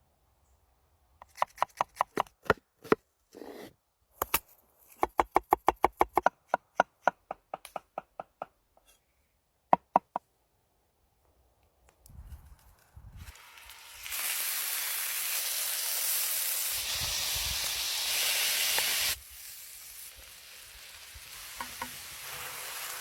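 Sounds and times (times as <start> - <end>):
knife scraping board: 2.8 - 3.7.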